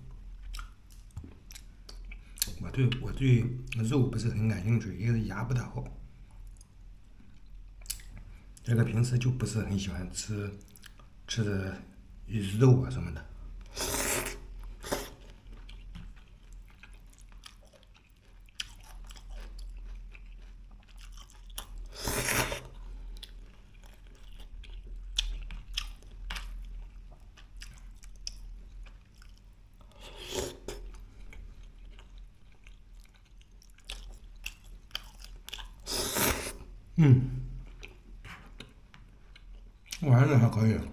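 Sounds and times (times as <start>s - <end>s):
person chewing food: 0.4s - 2.6s, 13.6s - 36.7s, 37.4s - 40.0s.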